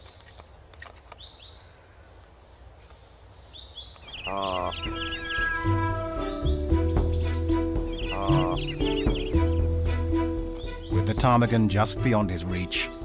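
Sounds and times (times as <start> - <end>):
outdoor background noise: 0.0 - 13.0
small birds chirping: 0.0 - 13.0
music with sustained notes: 4.2 - 13.0.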